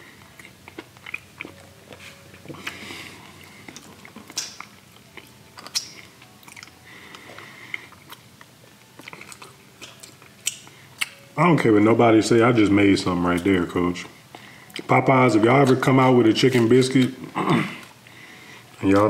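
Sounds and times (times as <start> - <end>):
person chewing: 0.0 - 11.3, 14.2 - 19.0
wet mouth clicks and smacks: 3.7 - 6.8, 9.0 - 11.2.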